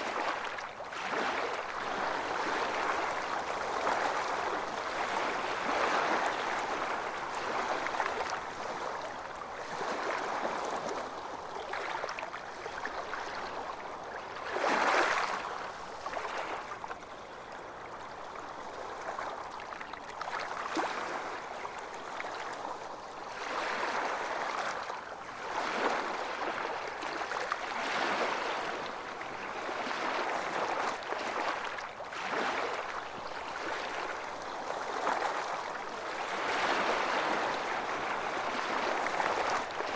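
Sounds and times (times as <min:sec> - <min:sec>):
ocean waves washing onto beach: 0:00.0 - 0:12.2, 0:23.4 - 0:39.9.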